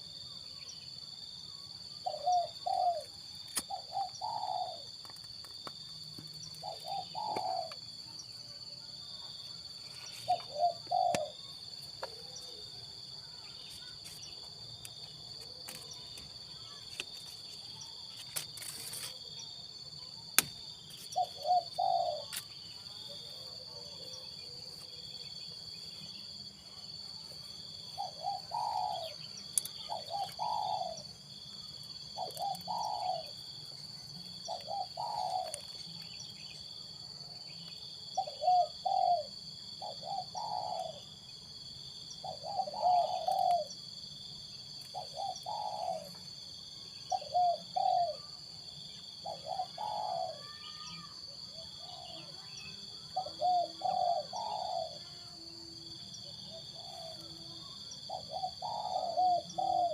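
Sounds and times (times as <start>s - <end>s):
dove cooing: 2.0s - 5.0s, 6.6s - 7.9s, 10.1s - 12.7s, 21.1s - 22.4s, 28.0s - 31.1s, 32.1s - 33.4s, 34.5s - 35.8s, 38.2s - 41.1s, 42.2s - 43.7s, 44.9s - 46.2s, 47.1s - 48.3s, 49.2s - 50.6s, 53.1s - 59.9s.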